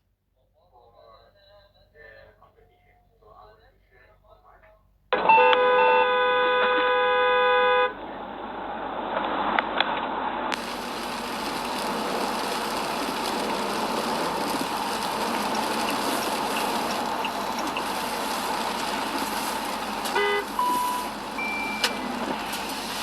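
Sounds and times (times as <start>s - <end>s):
horn honk: 5.2s - 8.0s, 11.9s - 23.0s
road and traffic noise: 5.2s - 23.0s
single-pitched beep: 20.2s - 22.1s.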